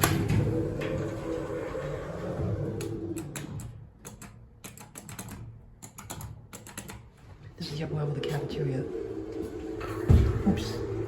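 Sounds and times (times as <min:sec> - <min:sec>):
elevator hum: 0:00.0 - 0:04.5, 0:07.5 - 0:11.0.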